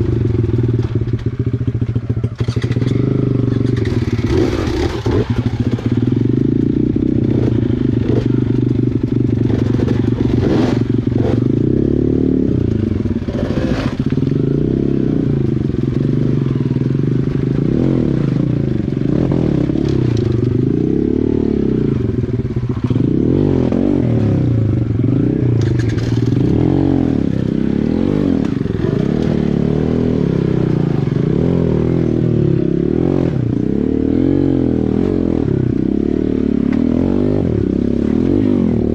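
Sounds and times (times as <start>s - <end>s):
small dirt bike engine revving: 2.3s - 35.8s
knocks and clatter over rocks: 25.6s - 26.6s.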